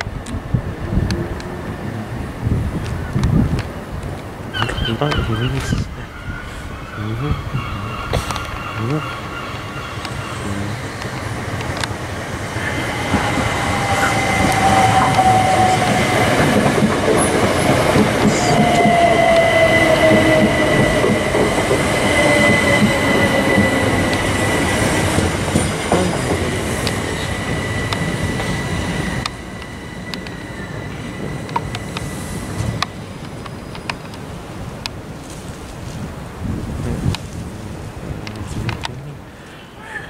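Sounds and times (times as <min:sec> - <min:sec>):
train wheels rumbling: 0:00.0 - 0:39.1
steady high squeal: 0:12.2 - 0:34.2.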